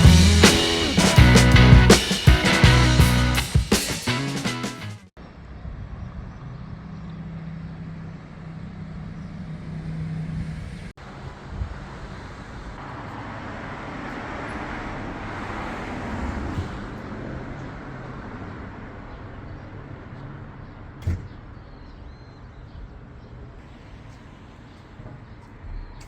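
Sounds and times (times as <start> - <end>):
road noise: 0.0 - 26.0
rushing wind: 10.2 - 19.0.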